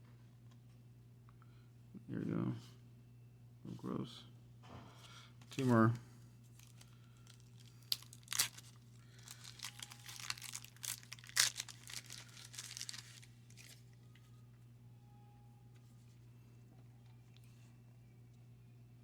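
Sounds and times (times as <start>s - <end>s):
wax paper wrapper tearing: 6.6s - 13.9s
wrapper crackling: 6.6s - 14.0s.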